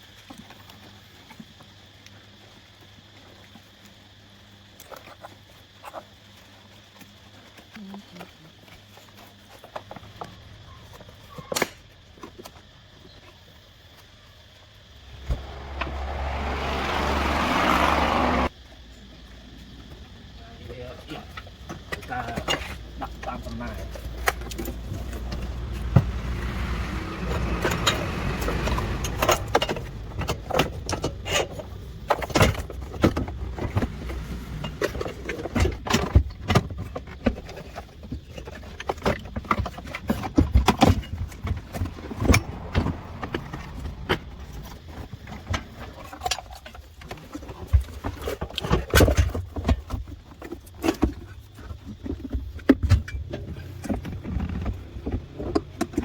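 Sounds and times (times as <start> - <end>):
low background rumble: 14.9 - 38.8, 39.4 - 46.7.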